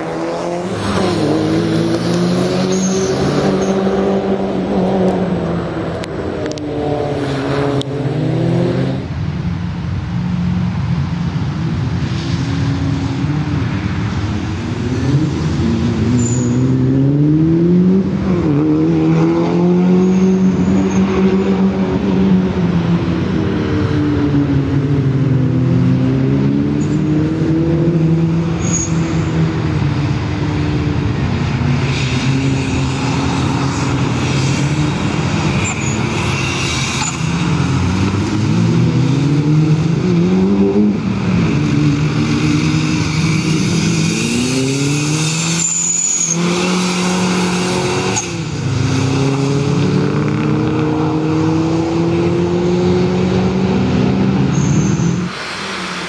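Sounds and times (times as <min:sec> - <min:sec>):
car engine revving hard: 0:37.4 - 0:56.0.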